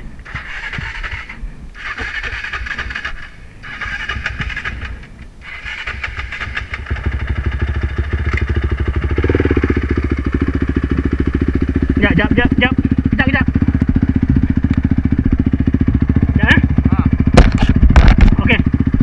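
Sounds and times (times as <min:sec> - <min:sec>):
dirt bike engine pulsing: 0:00.0 - 0:19.0
rasping engine bursts: 0:00.2 - 0:13.8.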